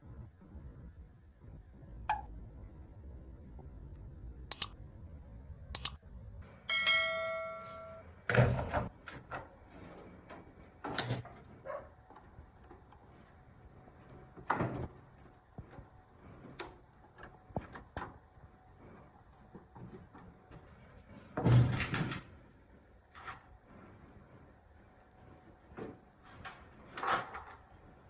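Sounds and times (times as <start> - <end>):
metal ringing: 6.7 - 8.1.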